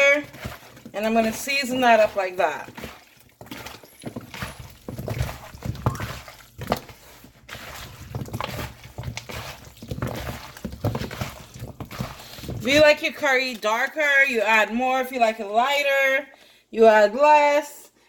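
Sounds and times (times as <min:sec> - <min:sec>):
wet squishes of food mixed by hand: 0:00.0 - 0:15.1
food pieces knocking against bowl: 0:02.7 - 0:07.0, 0:07.7 - 0:12.8.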